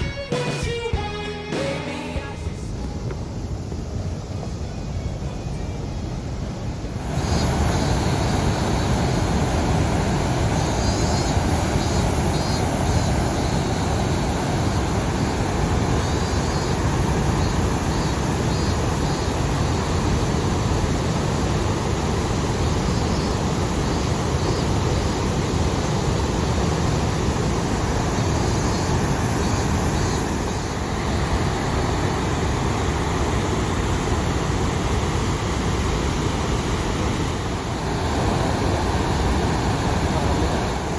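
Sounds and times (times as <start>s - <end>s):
dam water rushing and crashing: 6.5s - 40.9s.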